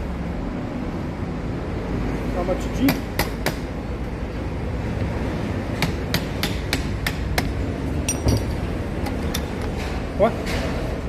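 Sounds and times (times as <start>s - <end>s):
ringing metallic clink: 8.0s - 8.6s.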